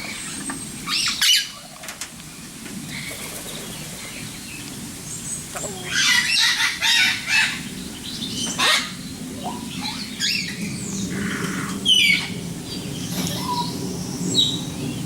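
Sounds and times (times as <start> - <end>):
birds chirping and whistling: 0.0 - 1.7, 2.4 - 15.0
birds squawking: 5.7 - 7.8, 8.4 - 12.4.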